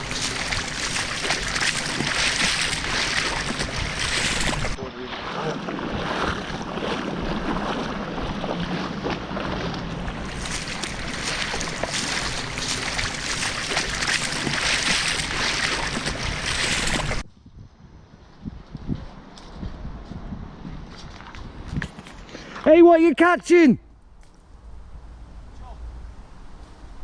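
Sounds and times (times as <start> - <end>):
river water rushing: 0.0 - 17.2.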